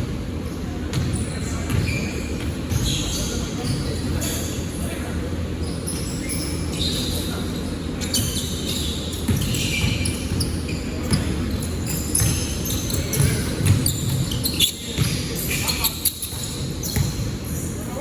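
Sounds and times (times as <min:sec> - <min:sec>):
voices: 0:00.3 - 0:18.0
basketball bouncing on court: 0:00.9 - 0:04.2, 0:08.2 - 0:17.5.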